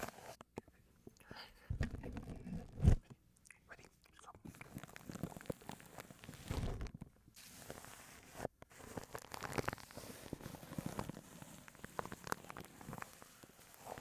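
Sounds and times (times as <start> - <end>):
brush scratching plastic wrap: 4.7 - 6.7, 7.4 - 14.0.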